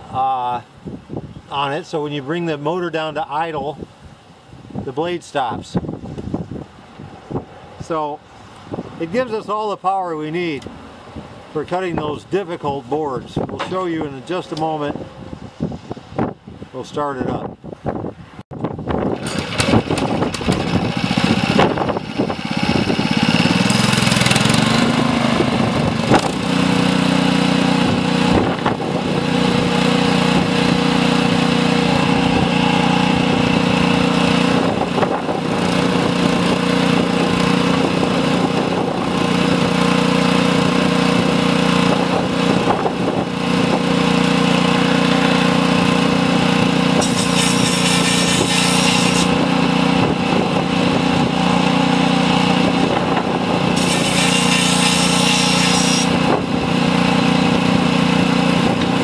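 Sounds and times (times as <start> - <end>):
gas engine starting and running: 18.6 - 59.0.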